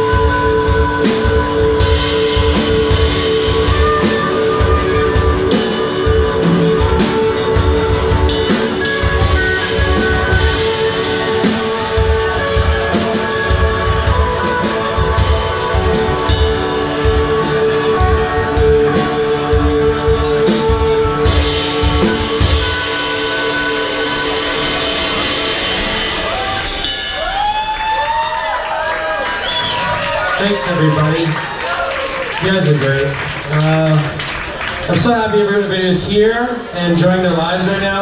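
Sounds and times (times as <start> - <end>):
electric guitars: 0.0 - 27.8
drum kit fast beat: 0.0 - 38.0.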